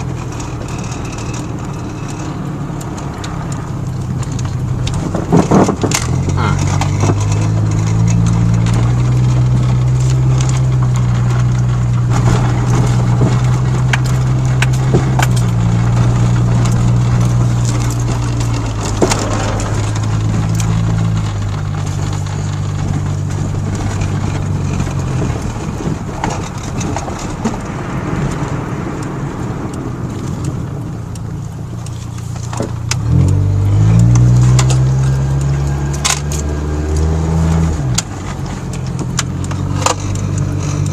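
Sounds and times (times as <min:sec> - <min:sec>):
light clicks and rattles: 0:00.0 - 0:28.6
truck engine running: 0:00.0 - 0:40.9.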